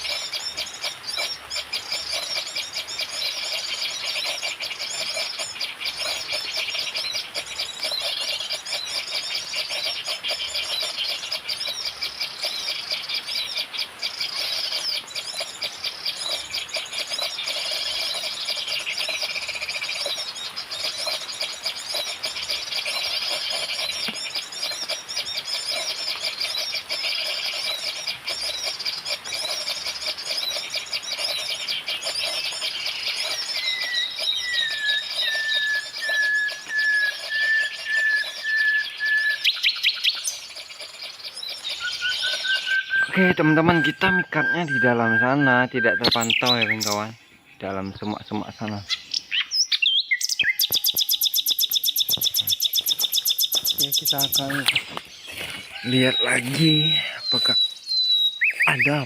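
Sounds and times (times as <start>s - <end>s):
bird chirping: 0.0s - 59.0s.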